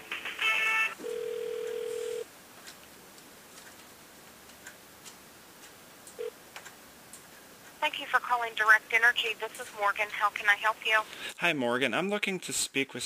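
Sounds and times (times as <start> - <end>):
telephone line hiss: 0.8 - 2.3
telephone ringback tone: 0.9 - 2.3
buzzy telephone beep: 1.0 - 2.2.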